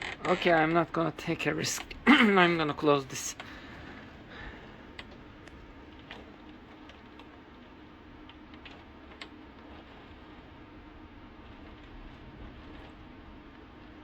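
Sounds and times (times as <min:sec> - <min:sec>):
muffled rain hiss: 0:00.0 - 0:14.0.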